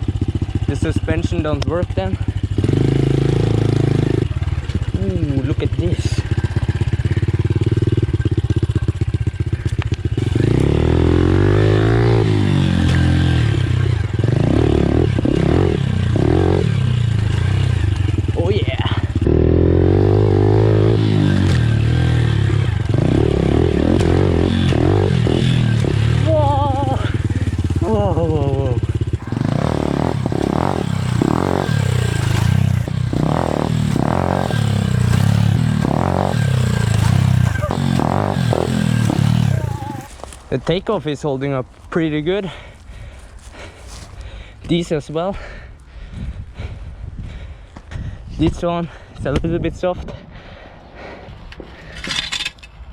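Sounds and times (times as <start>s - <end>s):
pit bike engine revving: 0.0s - 40.6s.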